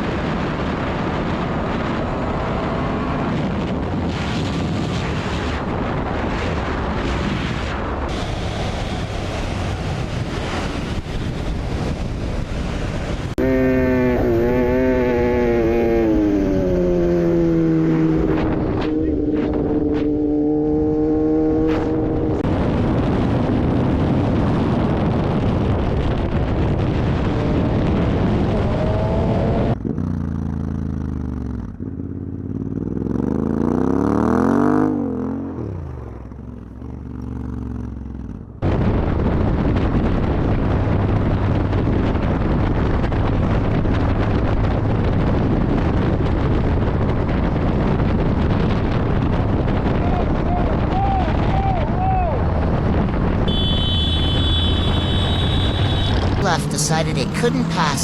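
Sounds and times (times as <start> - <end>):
wind and road rush: 0.0 - 58.0
motorcycle engine revving: 8.1 - 23.8, 26.9 - 38.5, 52.6 - 56.4.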